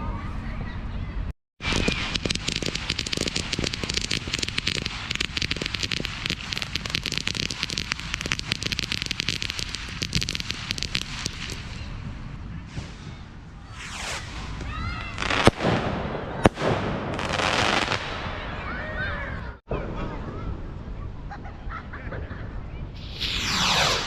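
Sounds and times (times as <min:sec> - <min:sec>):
fireworks crackling: 0:01.6 - 0:13.0, 0:13.7 - 0:18.4, 0:23.0 - 0:24.0.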